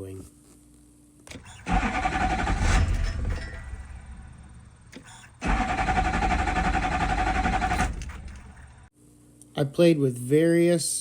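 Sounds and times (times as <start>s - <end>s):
diesel engine cranking on starter: 1.4s - 8.9s.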